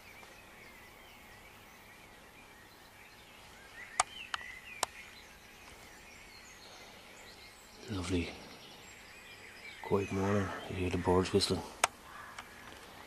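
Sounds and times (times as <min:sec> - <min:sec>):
faint birds singing and chirping: 0:00.0 - 0:13.0
sharp clicks: 0:04.0 - 0:05.0, 0:11.8 - 0:12.8.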